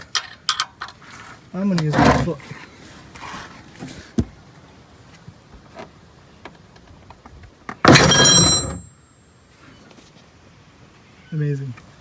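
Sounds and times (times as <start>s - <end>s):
loud metallic bang with ringing: 7.9s - 8.9s.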